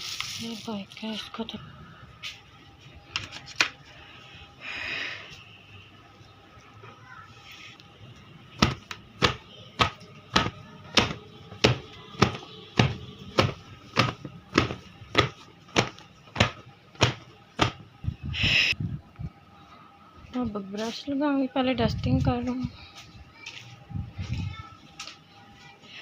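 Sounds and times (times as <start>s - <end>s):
rhythmic slapping by hand: 8.6s - 17.9s.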